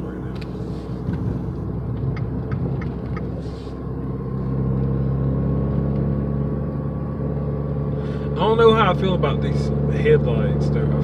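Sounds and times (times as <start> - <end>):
car engine from inside cabin: 0.0 - 11.0.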